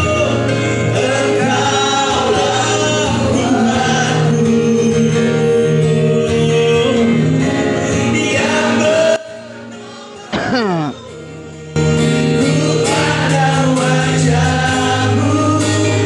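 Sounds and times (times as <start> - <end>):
gospel singing with instruments: 0.0 - 16.0.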